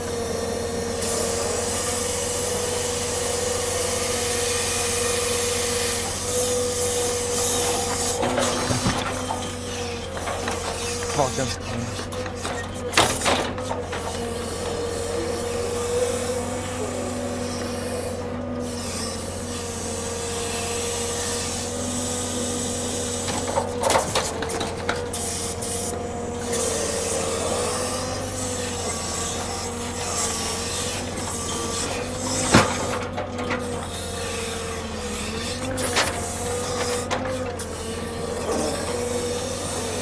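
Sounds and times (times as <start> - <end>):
truck engine running: 0.0 - 19.9
hydraulic whine: 0.0 - 40.0.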